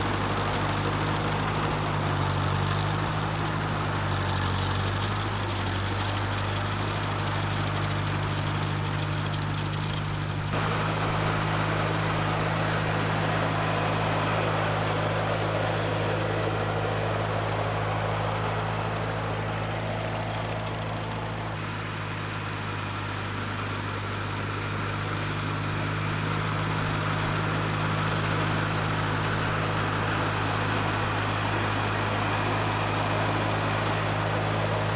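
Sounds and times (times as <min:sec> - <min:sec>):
tractor engine droning: 0:00.0 - 0:34.9.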